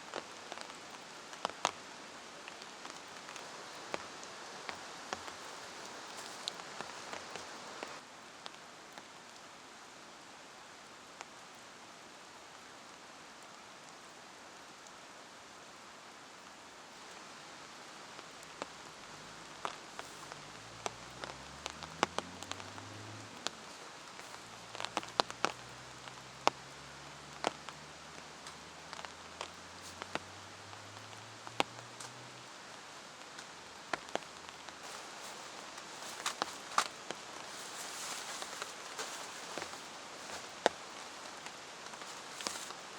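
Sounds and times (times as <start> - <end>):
rain falling: 0.0 - 42.9.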